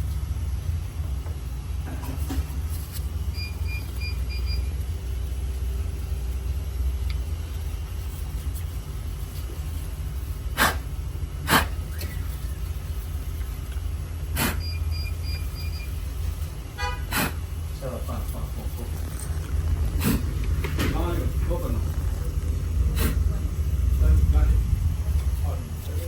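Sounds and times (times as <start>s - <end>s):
steady low rumble: 0.0s - 26.0s
short high beeps: 14.6s - 16.0s.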